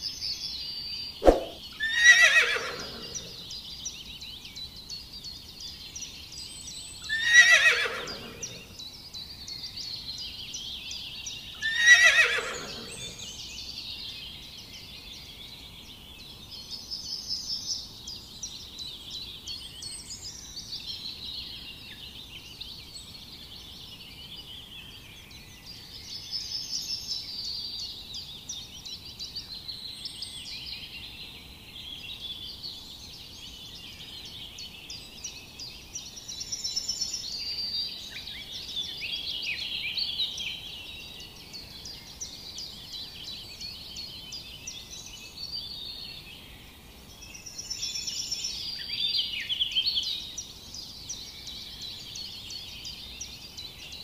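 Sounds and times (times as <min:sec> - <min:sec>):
birds chirping and trilling: 0:00.2 - 0:04.8, 0:06.4 - 0:10.4, 0:11.3 - 0:13.8.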